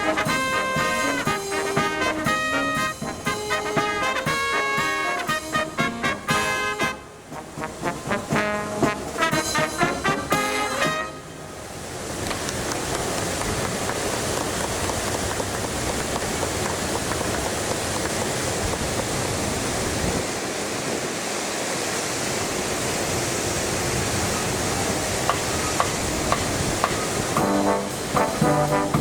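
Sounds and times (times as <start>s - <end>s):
wind buffeting microphone: 11.9s - 27.4s.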